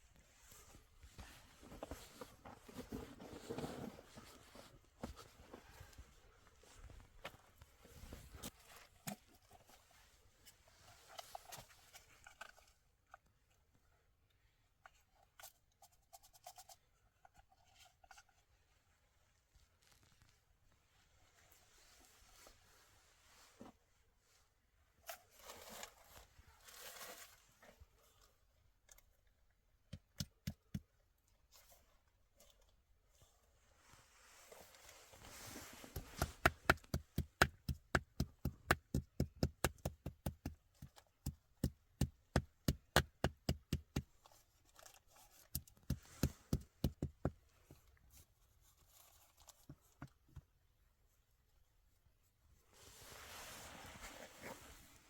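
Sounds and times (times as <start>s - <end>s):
soft rustling: 0.0s - 12.8s, 17.3s - 28.5s, 31.5s - 37.4s, 44.1s - 55.0s.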